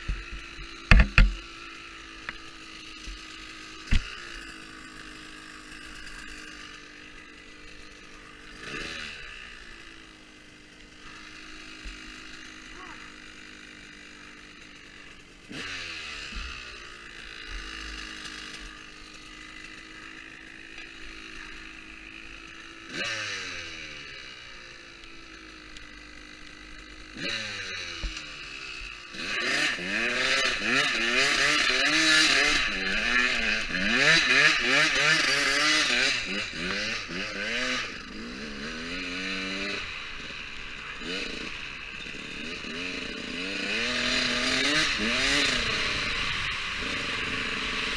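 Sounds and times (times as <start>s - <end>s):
motocross engine revving: 0.0s - 47.9s.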